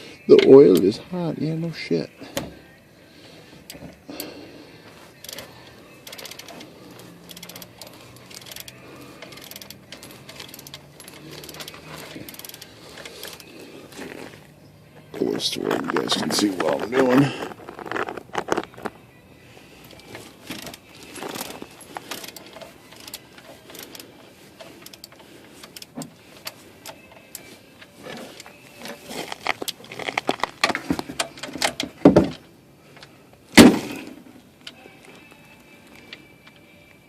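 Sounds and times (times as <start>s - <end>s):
metal tools clinking and rattling: 5.2s - 14.4s, 15.2s - 19.0s, 19.8s - 33.1s.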